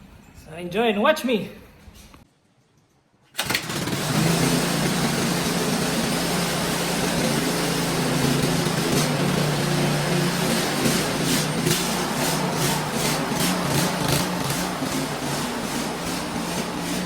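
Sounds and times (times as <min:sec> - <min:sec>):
snowblower engine running: 0:03.4 - 0:17.0.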